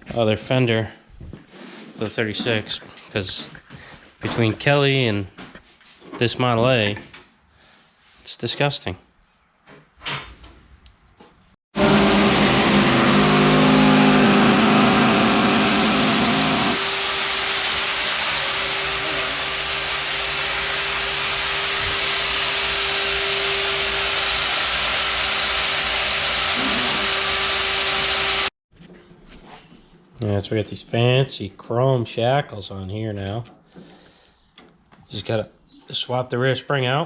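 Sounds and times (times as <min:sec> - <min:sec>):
machine motor hum: 0:11.8 - 0:28.5.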